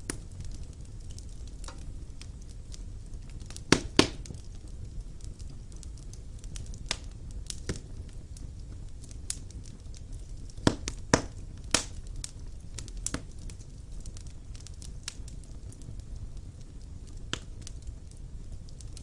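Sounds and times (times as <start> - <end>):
fire crackling and popping: 0.0 - 19.0
low rumble of flame: 0.0 - 19.0.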